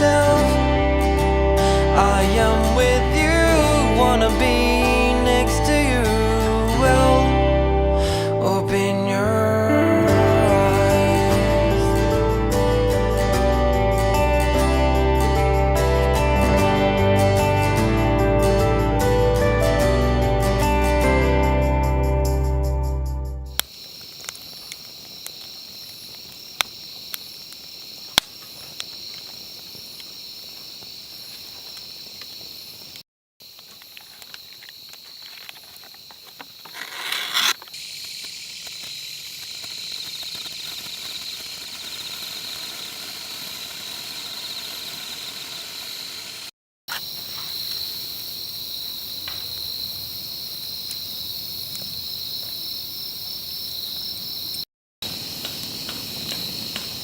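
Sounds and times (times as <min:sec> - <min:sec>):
insects chirring: 0:23.5 - 0:57.0
sharp clicks: 0:37.5 - 0:42.1.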